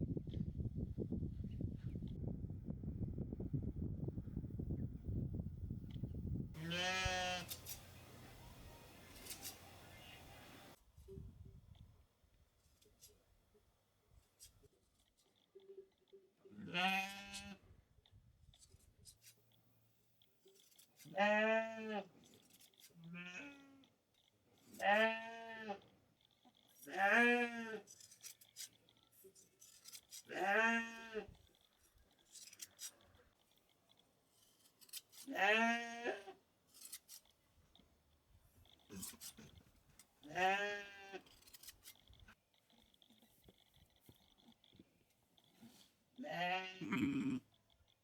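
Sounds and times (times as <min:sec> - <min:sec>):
sheep bleating: 0:06.6 - 0:07.5, 0:16.5 - 0:17.6, 0:26.8 - 0:27.9, 0:35.3 - 0:36.4, 0:40.3 - 0:41.3, 0:46.2 - 0:47.5.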